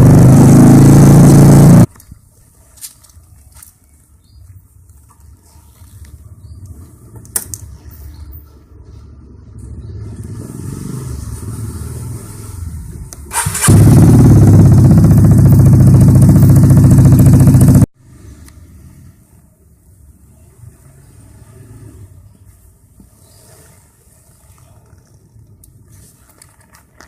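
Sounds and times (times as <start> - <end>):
scooter engine deep exhaust note: 0.0 - 1.9, 13.5 - 17.9.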